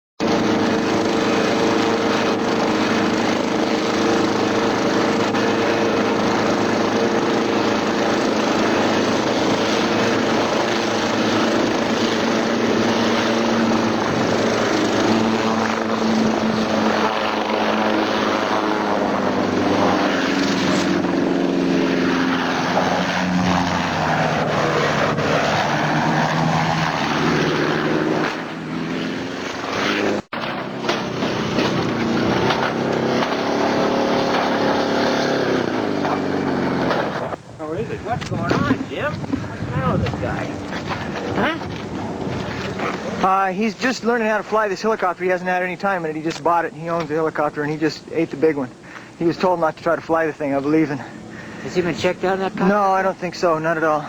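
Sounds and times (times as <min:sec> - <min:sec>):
helicopter engine and rotor: 0:00.2 - 0:28.7, 0:37.4 - 0:43.4, 0:51.0 - 0:52.7.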